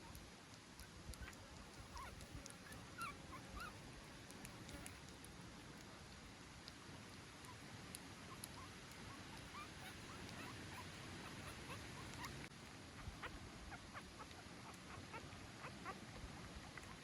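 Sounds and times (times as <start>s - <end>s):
puppy squeaking: 1.2s - 3.8s, 8.3s - 16.0s.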